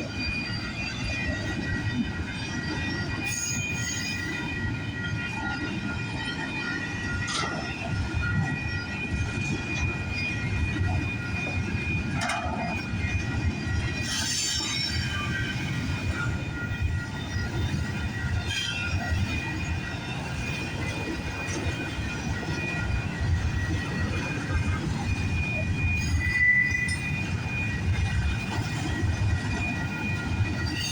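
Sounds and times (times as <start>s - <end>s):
freight train rumbling: 0.0s - 30.9s
steel wheels squealing: 0.1s - 4.8s, 9.4s - 20.6s, 23.6s - 30.9s
clanks and screeches: 14.0s - 15.7s.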